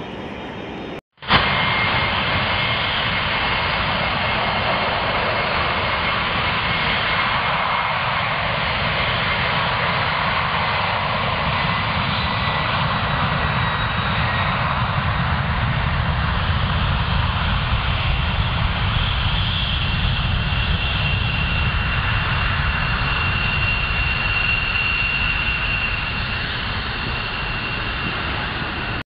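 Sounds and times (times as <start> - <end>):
jet engines running: 0.0 - 29.0.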